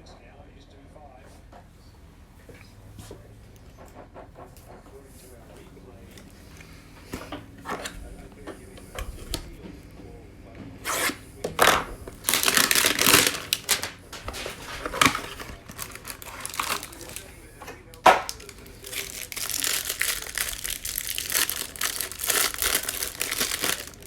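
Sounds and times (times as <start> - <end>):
packaging snapping: 7.6 - 9.6, 10.9 - 17.3, 17.9 - 24.0
packaging torn and crinkled: 11.0 - 17.3, 18.0 - 24.0.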